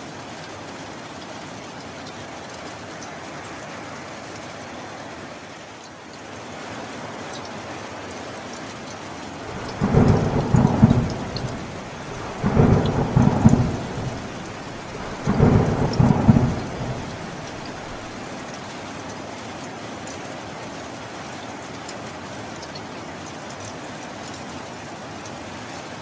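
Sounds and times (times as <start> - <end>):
steady rain: 0.0 - 26.0
thunder rolling: 9.5 - 18.2.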